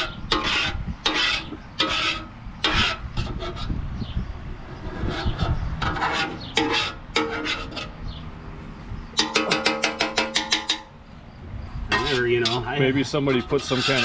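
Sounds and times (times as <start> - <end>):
tool scraping sludge from oil pan: 0.0 - 3.8, 5.0 - 7.9, 11.9 - 14.0.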